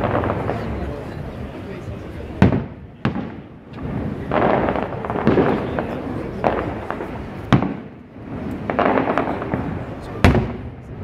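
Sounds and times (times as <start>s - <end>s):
fireworks crackling and rumble: 0.0s - 11.0s.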